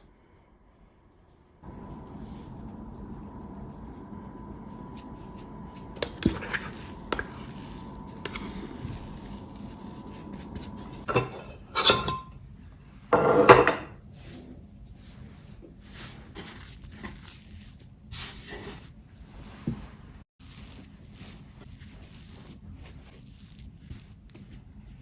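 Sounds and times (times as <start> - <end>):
dishes and utensils clinking: 4.1 - 12.4, 13.2 - 13.9.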